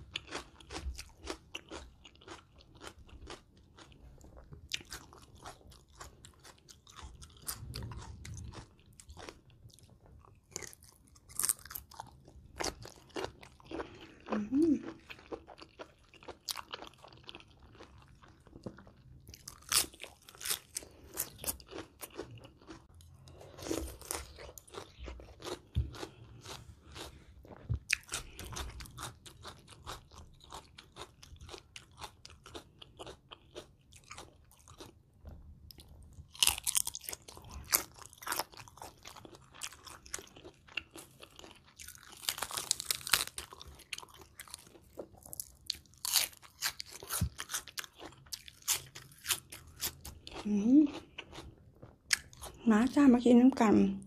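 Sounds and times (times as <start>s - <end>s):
crisp crunching while eating: 0.0s - 35.0s, 35.7s - 52.6s
quiet chewing: 0.0s - 52.6s.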